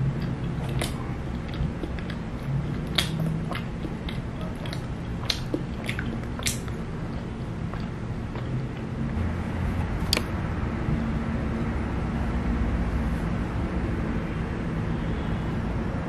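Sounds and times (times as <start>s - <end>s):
person chewing bread: 0.0s - 10.3s
low steady hum: 0.0s - 16.0s
moist mouth clicks: 0.1s - 8.9s.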